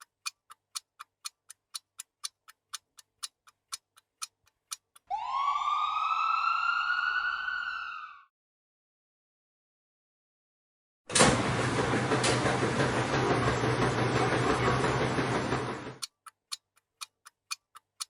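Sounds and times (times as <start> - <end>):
clock-like ticking: 0.0 - 5.1, 13.7 - 18.0.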